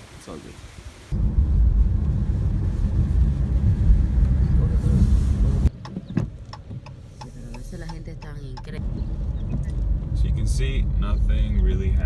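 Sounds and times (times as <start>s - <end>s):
wind buffeting microphone: 1.1s - 6.8s.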